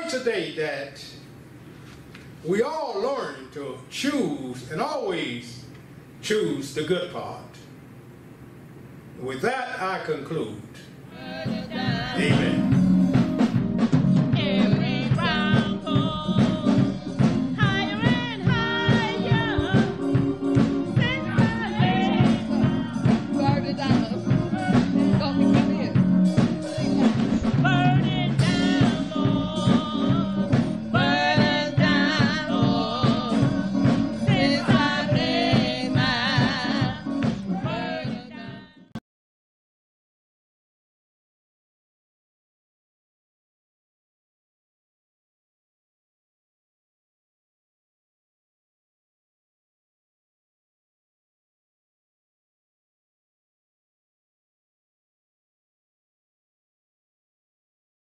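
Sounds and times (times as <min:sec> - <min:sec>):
song with singing over a beat: 0:11.1 - 0:39.0.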